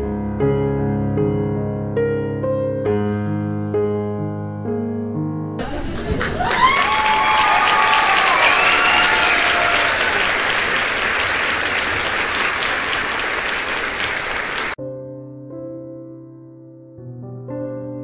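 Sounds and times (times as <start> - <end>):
soft piano music: 0.0 - 5.6, 14.8 - 18.0
crowd applause and cheering: 5.6 - 14.8
whoops: 6.2 - 10.7.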